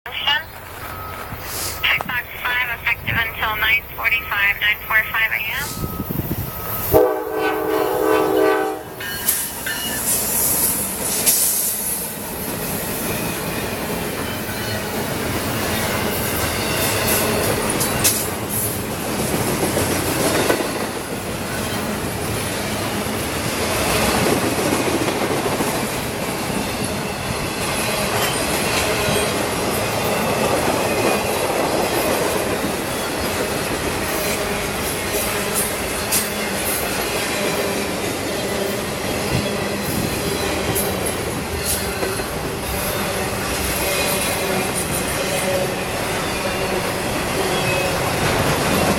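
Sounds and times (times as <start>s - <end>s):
freight train cars rolling by: 0.1s - 48.9s
train horn: 6.8s - 9.1s.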